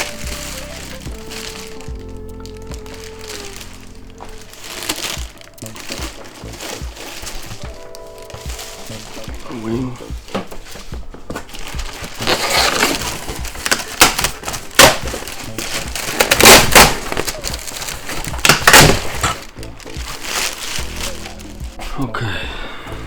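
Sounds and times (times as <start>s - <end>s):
packaging crinkling and rustling: 0.0s - 22.1s.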